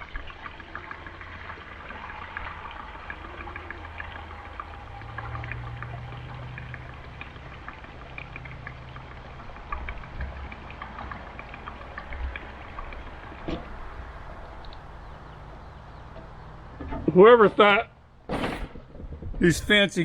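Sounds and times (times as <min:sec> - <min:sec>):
gasoline pouring into tank: 0:00.0 - 0:18.6
small ticks: 0:14.4 - 0:16.4.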